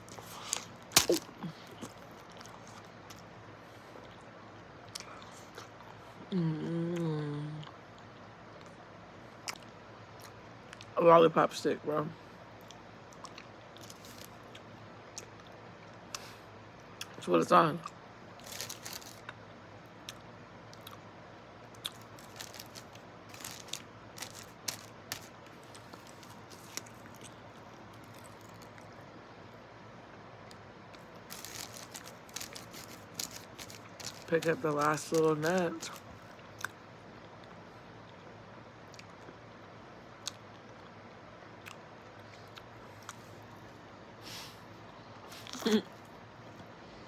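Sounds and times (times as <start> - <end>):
faint crunches of chewing: 0.0 - 6.1, 7.0 - 11.0, 12.4 - 17.2, 17.8 - 19.4, 20.0 - 21.0, 21.7 - 29.0, 30.5 - 37.6, 40.2 - 41.0, 41.6 - 43.8, 44.9 - 46.1.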